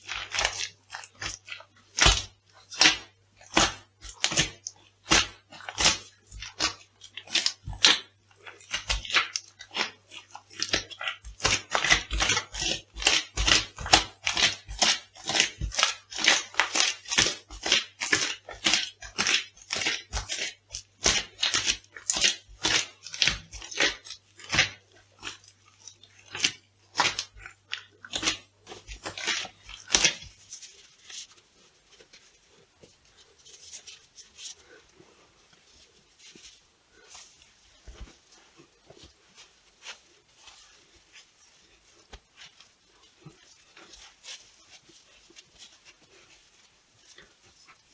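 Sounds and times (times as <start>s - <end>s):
food crunching and crackling: 0.0s - 32.8s
faint rustling: 30.3s - 47.9s.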